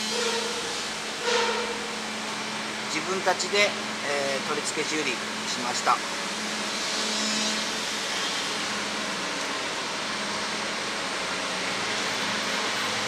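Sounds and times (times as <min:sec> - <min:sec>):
air compressor running: 0:00.0 - 0:11.9.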